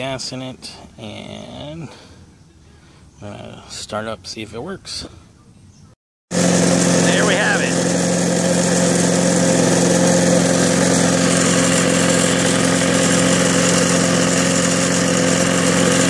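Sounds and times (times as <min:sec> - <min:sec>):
lawnmower engine running: 0:06.3 - 0:16.0.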